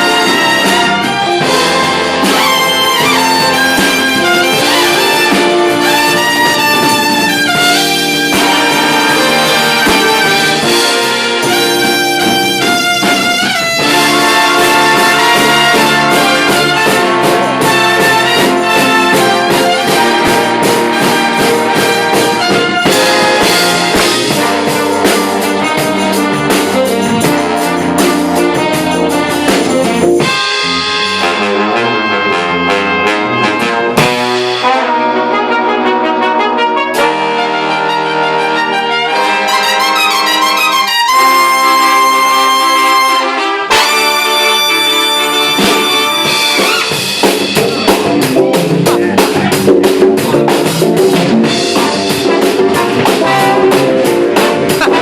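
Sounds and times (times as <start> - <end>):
drum beat: 0.0 - 31.6, 33.0 - 35.0, 43.7 - 55.0
big band jazz with brass: 0.0 - 55.0.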